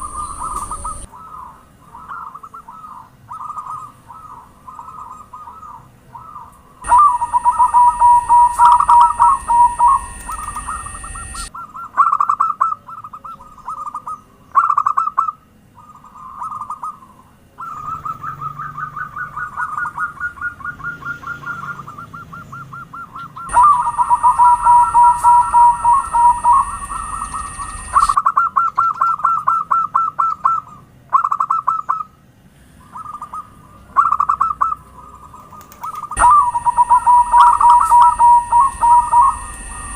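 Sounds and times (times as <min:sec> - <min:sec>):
steady high tone: 0:00.0 - 0:01.2, 0:06.8 - 0:11.6, 0:23.5 - 0:28.2, 0:36.2 - 0:39.9
doves cooing in staccato trills: 0:00.0 - 0:32.2, 0:32.8 - 0:39.9.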